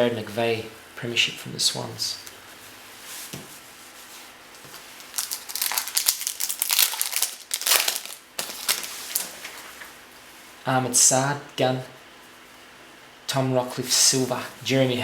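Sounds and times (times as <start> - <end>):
card pack wrapper crinkling: 4.9 - 9.6.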